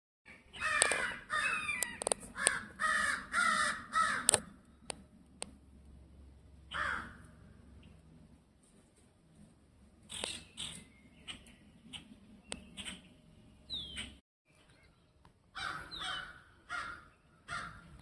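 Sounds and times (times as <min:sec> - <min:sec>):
crows cawing harshly: 0:00.5 - 0:04.5, 0:06.7 - 0:07.4, 0:15.6 - 0:18.0
sharp clicks: 0:00.7 - 0:01.0, 0:01.8 - 0:02.6, 0:04.2 - 0:05.6.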